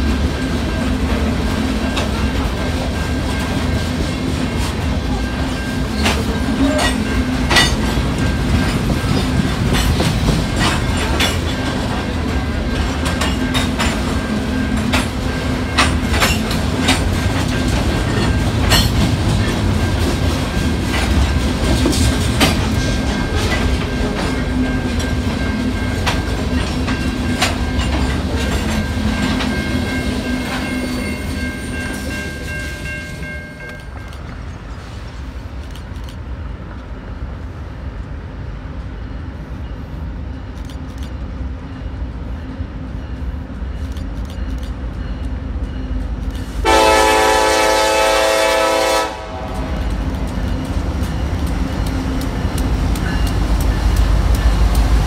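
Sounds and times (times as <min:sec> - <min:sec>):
wheels clacking over rail joints: 0:00.0 - 0:34.4
freight train rumbling: 0:00.0 - 0:55.0.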